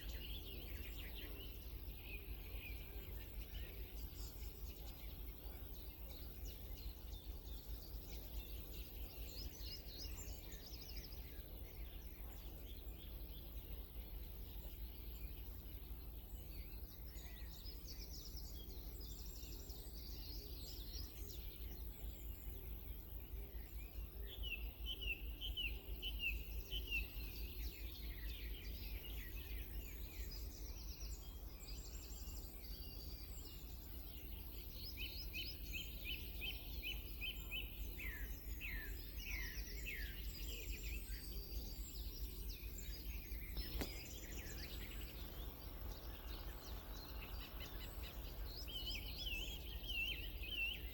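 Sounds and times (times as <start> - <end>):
songbirds singing: 0.0 - 50.9
single click: 43.6 - 44.5.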